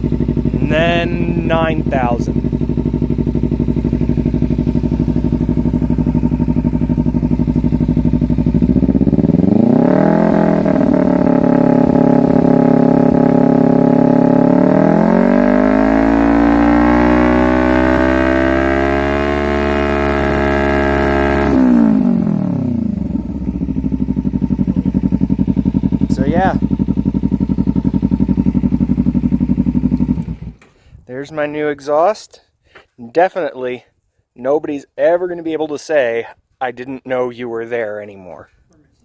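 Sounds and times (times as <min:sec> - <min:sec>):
motorcycle engine revving: 0:00.0 - 0:30.7.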